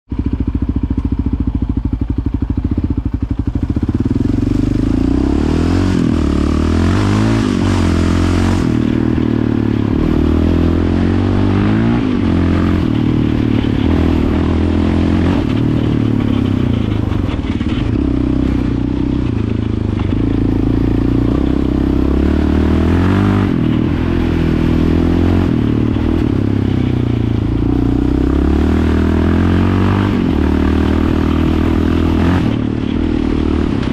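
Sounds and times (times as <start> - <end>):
single-cylinder engine revving: 3.6 - 33.9.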